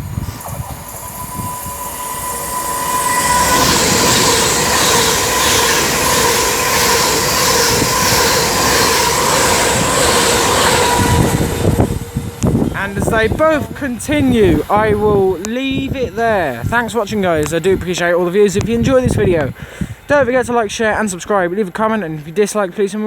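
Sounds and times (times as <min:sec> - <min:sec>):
thin high tone: 0:00.0 - 0:14.9
electric train passing at speed: 0:00.0 - 0:22.5.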